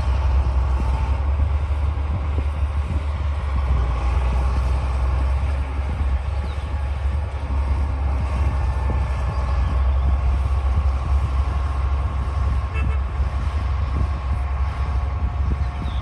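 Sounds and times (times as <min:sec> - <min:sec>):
bulldozer diesel engine rumbling: 0:00.0 - 0:16.0.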